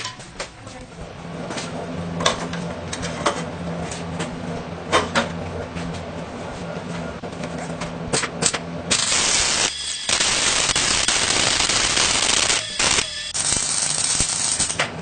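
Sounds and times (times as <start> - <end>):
harsh crackling hiss: 9.0 - 14.7.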